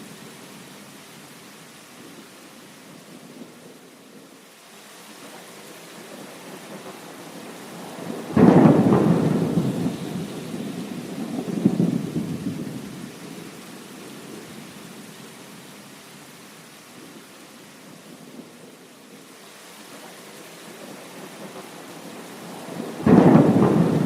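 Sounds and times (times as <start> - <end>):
heavy rain: 0.0 - 24.0
thunderclap rolling into rumble: 8.4 - 12.7, 22.8 - 24.0.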